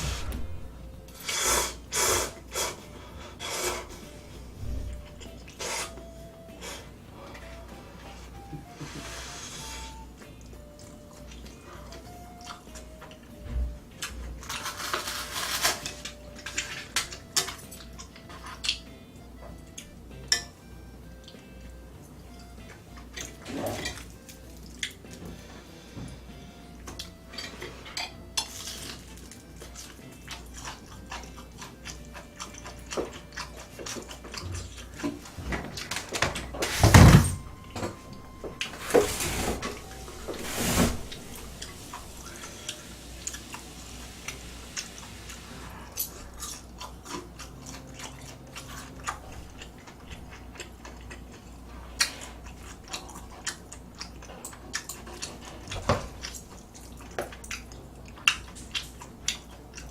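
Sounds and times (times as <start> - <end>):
loud noisy surges: 0.0 - 0.8
chewing: 9.7 - 20.3, 21.2 - 26.0, 26.7 - 36.5, 41.5 - 59.9
utensils clicking on dishes: 14.4 - 18.9, 20.2 - 20.6.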